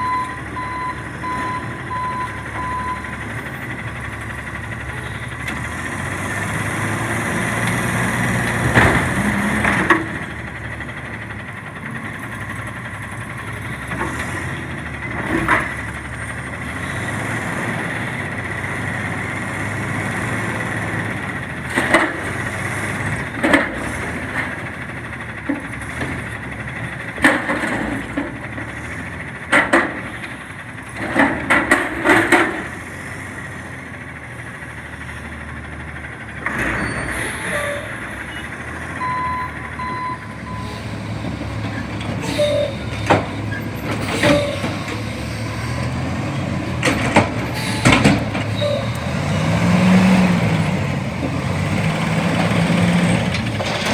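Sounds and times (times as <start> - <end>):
garbage truck engine running: 0.0 - 53.9
metal bangs and clanks: 40.3 - 53.9.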